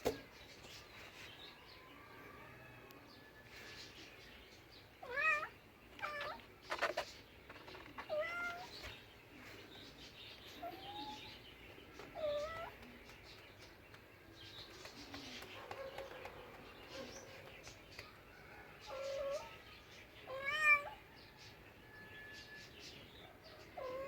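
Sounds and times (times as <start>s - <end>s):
cat meowing: 5.0s - 6.4s, 8.1s - 8.7s, 20.3s - 21.0s, 23.8s - 24.0s.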